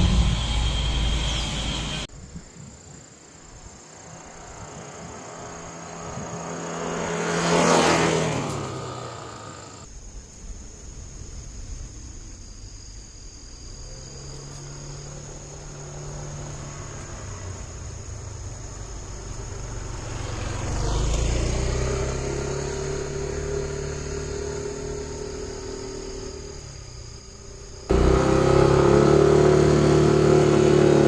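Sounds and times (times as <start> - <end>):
vehicle engine humming: 0.0 - 2.1, 3.9 - 9.9, 13.2 - 31.0
vehicle passing close: 4.2 - 9.9, 14.3 - 26.6, 27.9 - 31.0.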